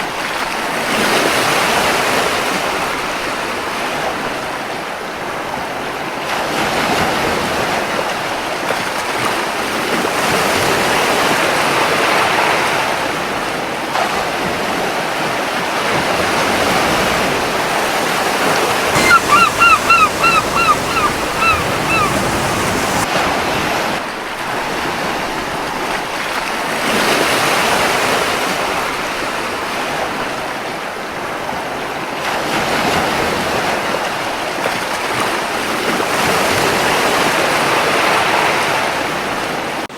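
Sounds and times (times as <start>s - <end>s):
ocean surf washing onto beach: 18.9s - 23.1s
seagull calling: 19.0s - 23.0s.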